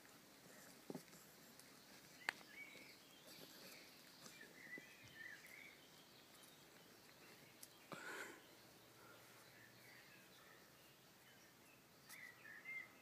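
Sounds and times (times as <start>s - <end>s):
faint bird chirps: 1.4s - 13.0s.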